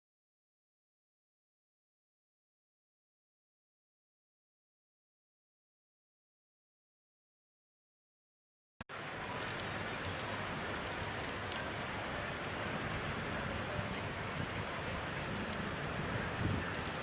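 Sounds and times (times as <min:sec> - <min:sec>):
rain on hard surfaces: 0:08.9 - 0:17.0
single raindrops ticking: 0:09.0 - 0:17.0.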